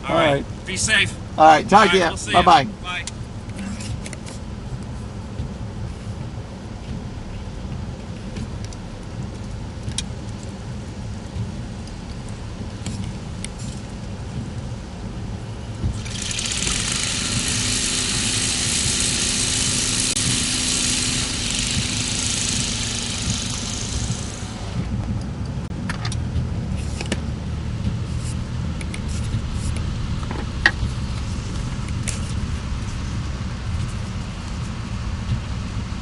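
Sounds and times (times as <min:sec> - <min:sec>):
car engine running: 0:00.0 - 0:36.0
loud even hiss: 0:15.9 - 0:25.0.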